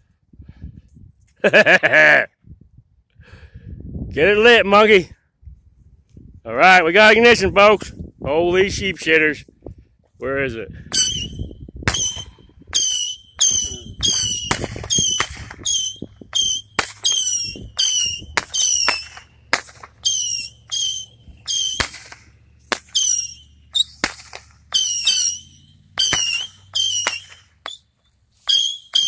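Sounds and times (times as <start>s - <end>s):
firework pops with falling whistle: 10.9s - 29.0s.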